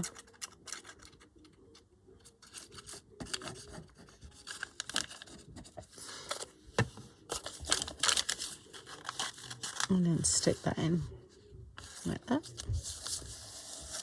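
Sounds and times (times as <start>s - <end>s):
paper and card scraping: 11.8s - 14.0s.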